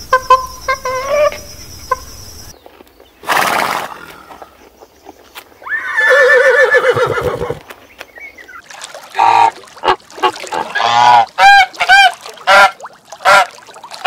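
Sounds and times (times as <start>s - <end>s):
horse whinnying: 5.6s - 7.6s
goose honking: 10.7s - 13.5s.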